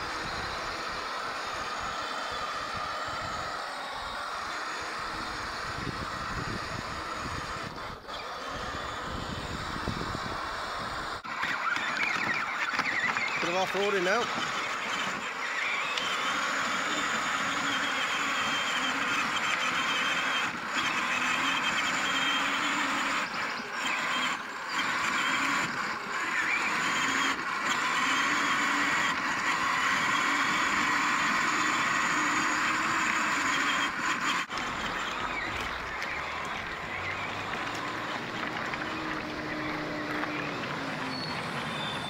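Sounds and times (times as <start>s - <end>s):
electric motors whining: 0.0s - 42.0s
plastic wheels on rough ground: 0.0s - 42.0s.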